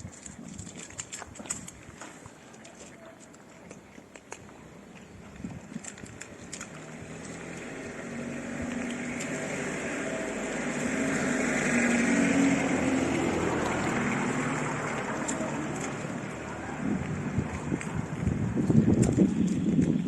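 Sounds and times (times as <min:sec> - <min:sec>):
motor vehicle passing by: 0:05.9 - 0:19.8.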